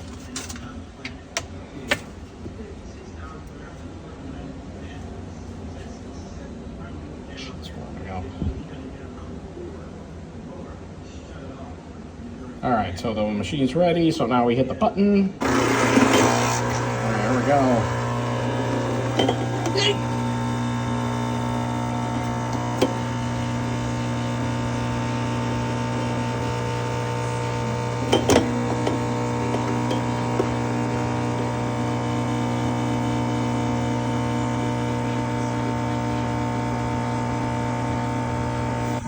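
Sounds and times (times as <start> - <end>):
coffee machine pump buzzing: 15.4 - 39.0.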